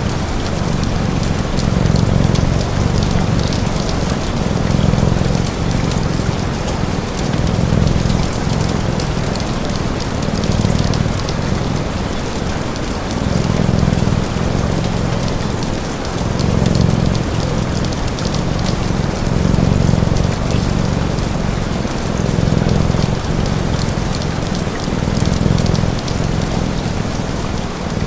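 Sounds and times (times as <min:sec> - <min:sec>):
steady rain: 0:00.0 - 0:28.0.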